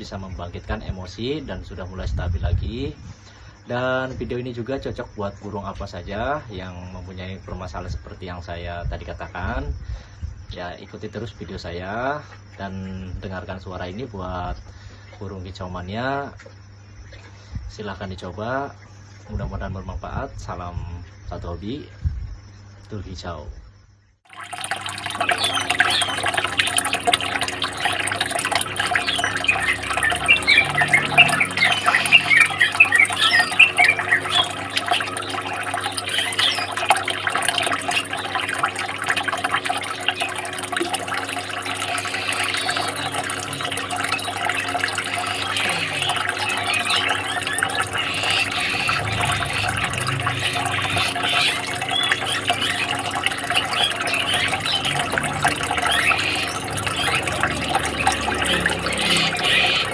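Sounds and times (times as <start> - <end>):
small birds chirping: 24.1 - 59.9
water trickling: 24.3 - 59.9.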